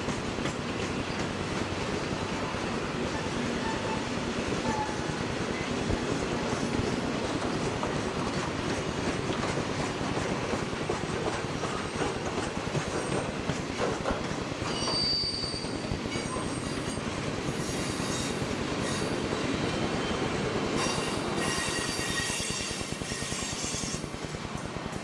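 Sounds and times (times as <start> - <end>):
train wheels rumbling on rails: 0.0 - 25.0
high-pitched wheel squeals: 14.7 - 19.3, 20.8 - 24.0.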